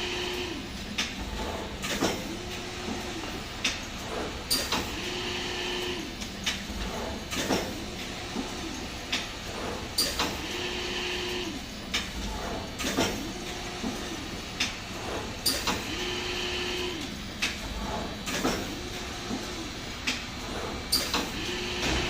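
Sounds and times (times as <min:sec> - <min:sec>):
mechanism clacking and knocking: 0:01.0 - 0:02.3, 0:06.4 - 0:07.8, 0:11.9 - 0:14.0, 0:17.4 - 0:18.7.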